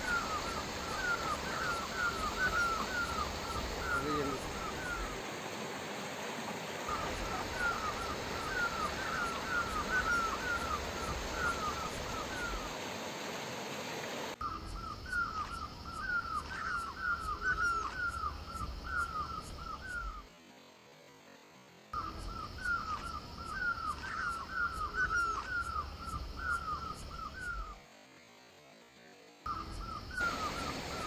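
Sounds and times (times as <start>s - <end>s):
bird chirping: 0.0s - 5.2s
steady background hiss: 0.0s - 31.0s.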